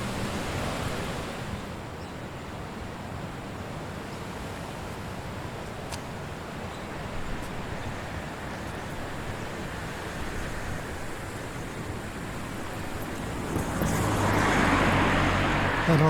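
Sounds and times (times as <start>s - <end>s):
strong wind through trees: 0.0s - 16.0s
motor vehicle approaching: 9.7s - 16.0s.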